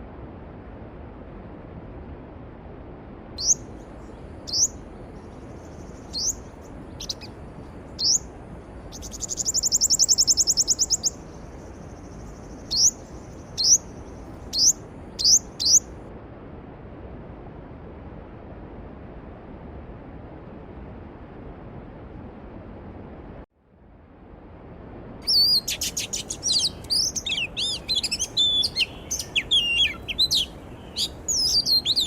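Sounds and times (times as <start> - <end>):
loud fast bird trill: 3.4 - 3.6, 4.5 - 4.8, 5.7 - 7.3, 8.0 - 8.2, 8.9 - 11.3, 12.0 - 15.8, 25.3 - 32.0
songbird calling: 3.4 - 7.4, 8.0 - 8.3, 8.9 - 15.9, 25.2 - 32.0.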